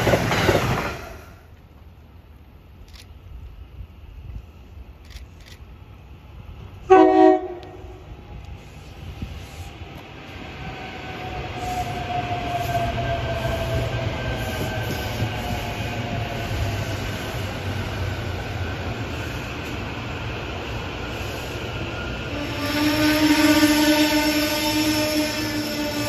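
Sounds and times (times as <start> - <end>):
electric train rumbling past: 0.0 - 26.0
train horn blast: 6.8 - 8.1, 22.3 - 26.0.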